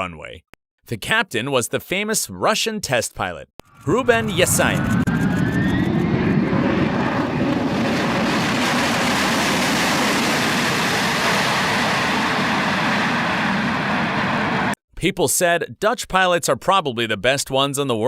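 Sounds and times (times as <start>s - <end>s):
airplane engines rushing: 3.7s - 14.8s.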